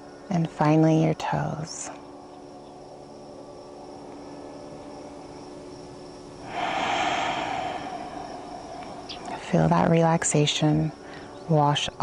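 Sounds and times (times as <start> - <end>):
crickets chirring: 0.0 - 12.0
broad rush of noise: 6.5 - 9.6.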